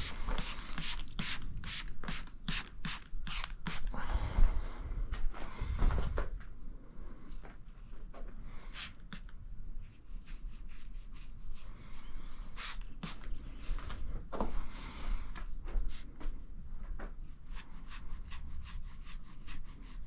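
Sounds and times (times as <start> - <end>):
footsteps: 4.0 - 9.0, 13.0 - 17.2.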